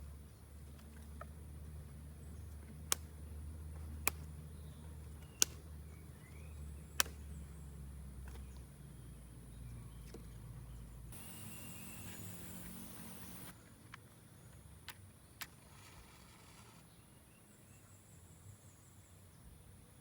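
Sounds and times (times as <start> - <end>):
sharp snaps: 2.9 - 3.1, 5.2 - 5.7, 6.9 - 7.3.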